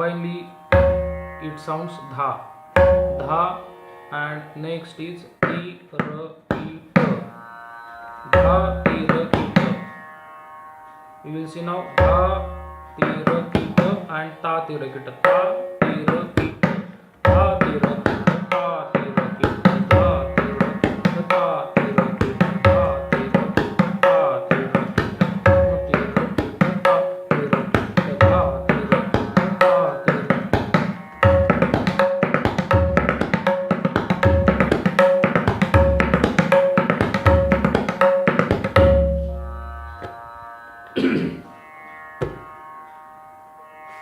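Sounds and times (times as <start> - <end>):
tabla drumming: 0.7 - 1.4, 2.8 - 3.5, 5.4 - 7.3, 8.3 - 9.8, 12.0 - 14.0, 15.2 - 40.2, 42.2 - 42.4.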